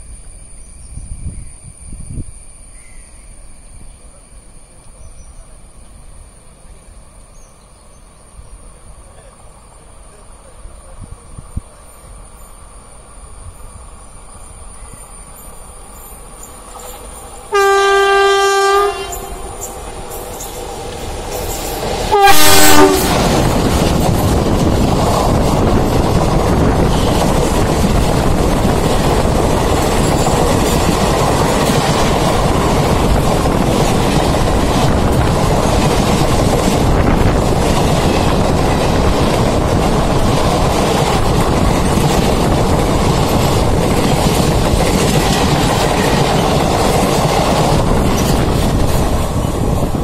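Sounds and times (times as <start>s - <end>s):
train wheels rumbling on rail: 0.0s - 50.0s
clickety-clack over rail joints: 18.9s - 50.0s.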